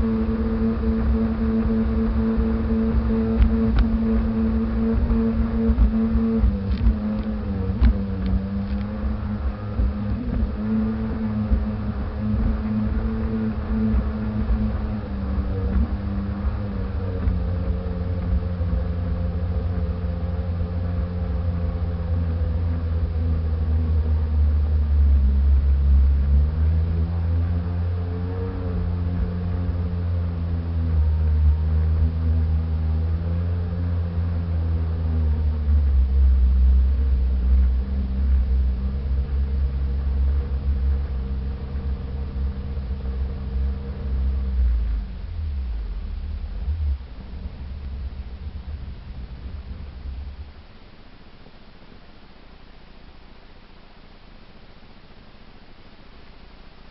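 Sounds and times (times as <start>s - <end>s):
jet ski engine running: 0.0s - 56.9s.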